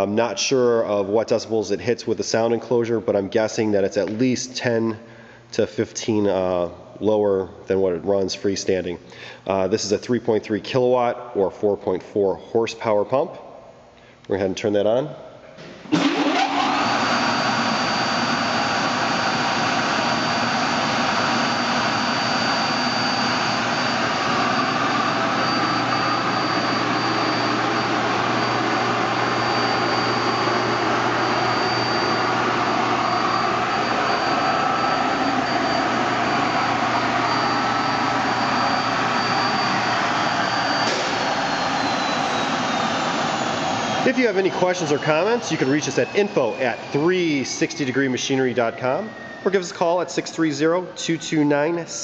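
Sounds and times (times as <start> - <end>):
vacuum pump running: 15.6 - 50.2.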